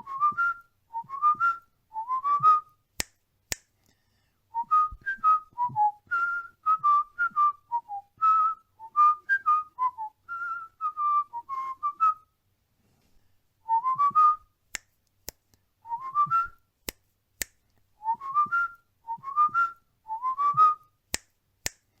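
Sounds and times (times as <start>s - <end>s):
cockatiel whistling a tune: 4.6s - 12.2s, 18.0s - 20.8s.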